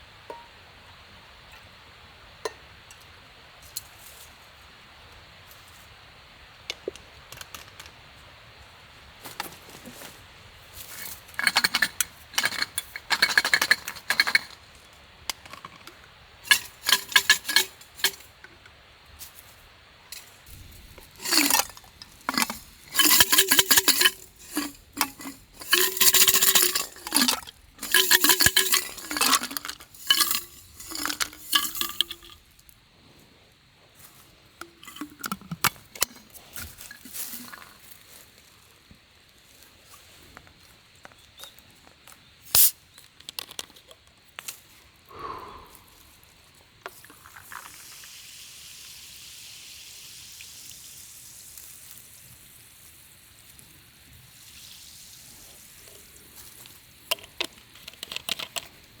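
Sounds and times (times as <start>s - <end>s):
utensil clinking in metal pot: 0.3s - 0.6s, 11.4s - 14.6s, 15.3s - 18.7s, 20.1s - 32.4s, 34.6s - 37.8s, 57.1s - 58.8s
metal cookware scraping: 16.5s - 18.3s, 20.2s - 32.4s.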